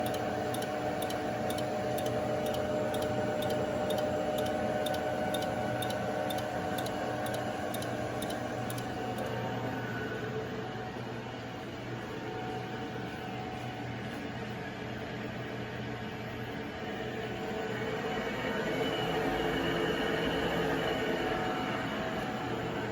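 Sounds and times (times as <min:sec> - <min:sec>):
faint regular ticking: 0:00.0 - 0:09.3
machine hum: 0:00.0 - 0:11.9.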